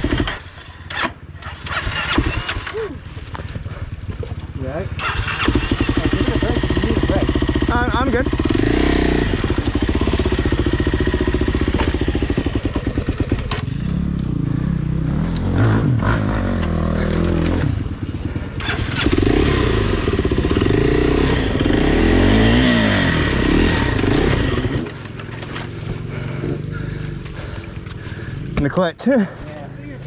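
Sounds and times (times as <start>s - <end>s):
dirt bike engine revving: 0.0s - 4.0s, 5.0s - 29.4s
knocks and clatters: 24.1s - 26.0s.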